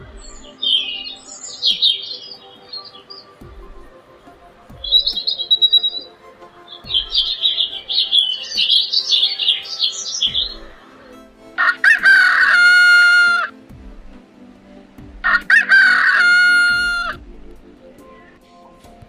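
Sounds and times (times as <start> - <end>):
small birds chirping: 0.0 - 18.5
rooster crowing: 6.9 - 13.5, 15.3 - 17.2.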